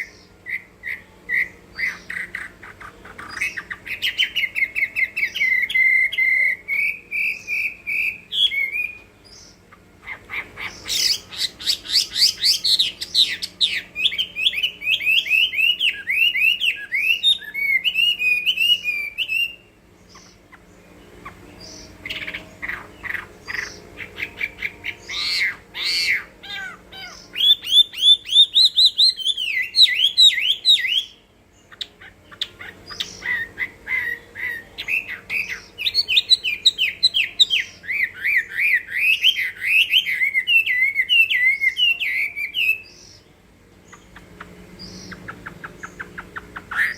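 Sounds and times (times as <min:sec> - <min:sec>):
bird singing whistles: 0:10.8 - 0:19.7, 0:32.9 - 0:43.2.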